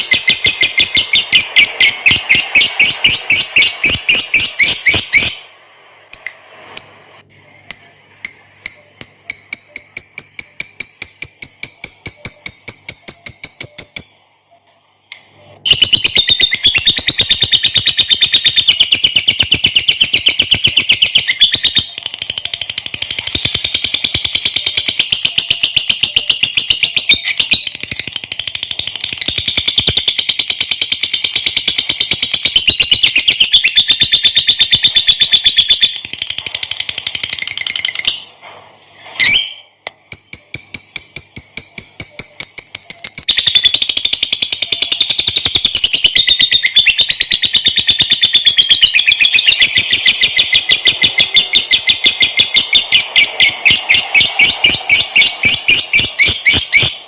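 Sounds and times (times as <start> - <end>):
bird chattering trill: 7.7 - 14.2.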